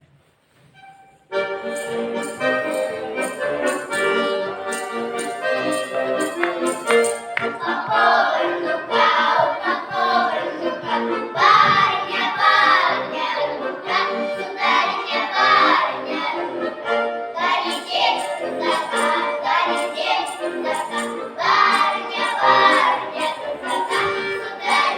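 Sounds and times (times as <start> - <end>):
accordion playing: 0.8 - 24.9
voices singing folk song: 1.5 - 24.9.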